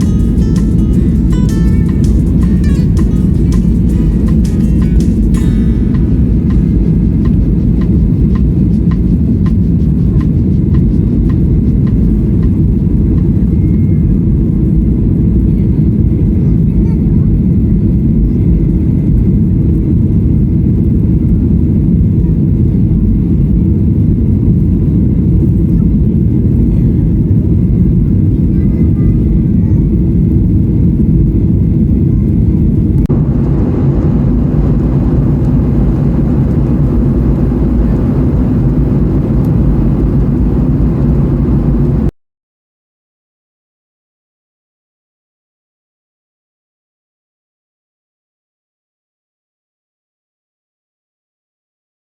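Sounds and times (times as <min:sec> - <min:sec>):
moving vehicle rumble: 0:00.0 - 0:42.1.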